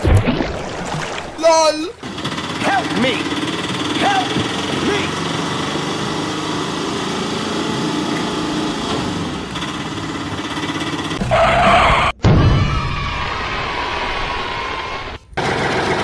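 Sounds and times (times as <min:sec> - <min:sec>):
small engine running: 0:02.0 - 0:11.2, 0:15.4 - 0:16.0.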